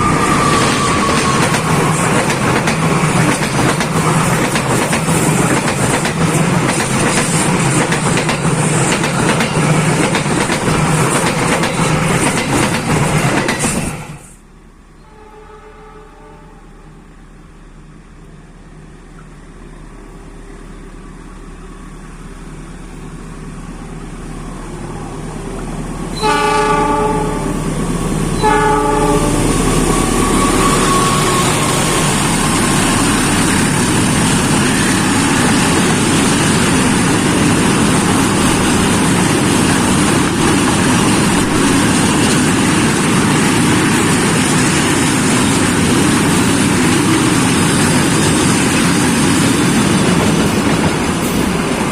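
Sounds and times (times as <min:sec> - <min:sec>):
train wheels rumbling on rails: 0:00.0 - 0:14.5, 0:15.1 - 0:51.9
train horn blasts: 0:15.0 - 0:17.1, 0:26.1 - 0:33.2.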